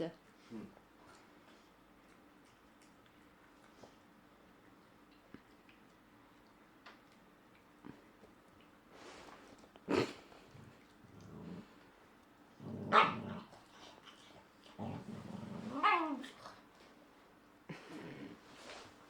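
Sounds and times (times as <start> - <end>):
dogs growling: 9.8 - 16.7, 17.7 - 18.5
dog whining: 15.6 - 16.4.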